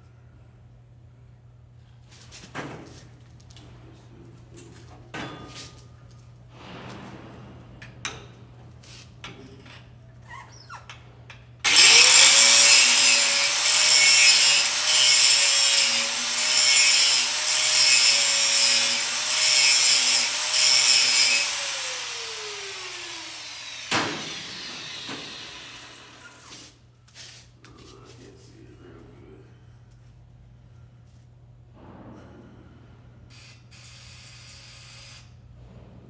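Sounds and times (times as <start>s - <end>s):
angle grinder grinding metal: 11.6s - 26.5s
grinder winding down whine: 11.6s - 26.5s.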